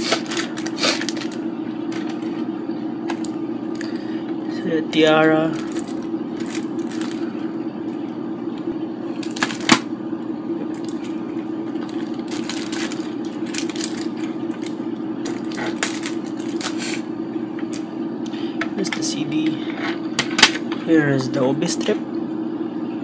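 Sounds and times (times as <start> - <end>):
steady low hum: 0.0 - 23.0
cd case clicks and crinkles: 0.1 - 2.3, 5.6 - 7.2, 9.2 - 9.9, 11.8 - 16.9.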